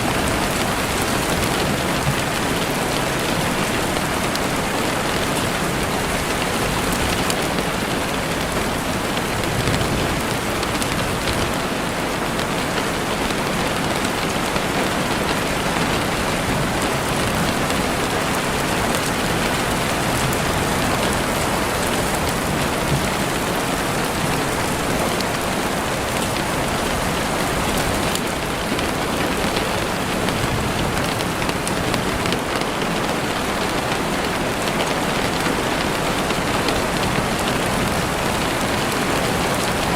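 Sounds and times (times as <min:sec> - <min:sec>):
heavy rain on a window: 0:00.0 - 0:39.9.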